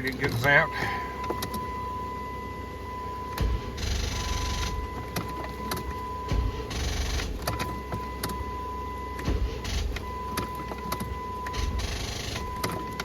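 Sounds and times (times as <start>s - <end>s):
high electronic beep: 3.3s - 13.0s.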